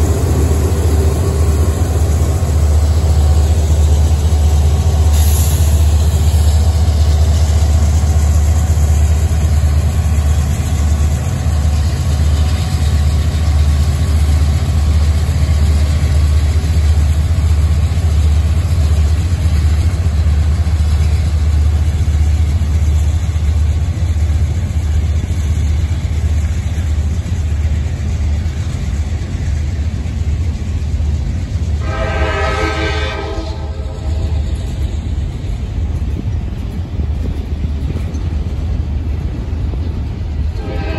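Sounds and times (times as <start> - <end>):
freight train rumbling: 0.0 - 40.9
locomotive horn blast: 31.8 - 34.6, 40.6 - 40.9.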